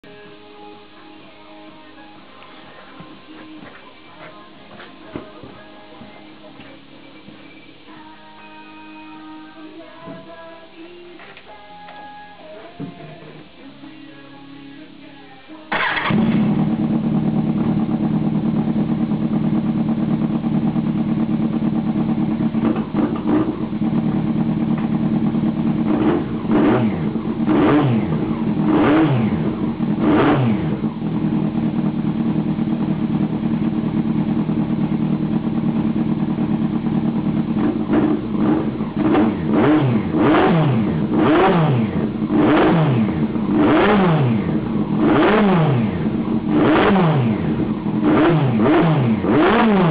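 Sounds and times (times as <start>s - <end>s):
motorcycle engine idling and revving: 15.7s - 49.9s.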